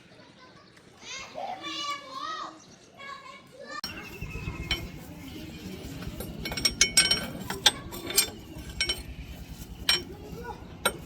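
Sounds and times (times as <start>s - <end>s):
metal tools clinking: 3.8s - 11.0s.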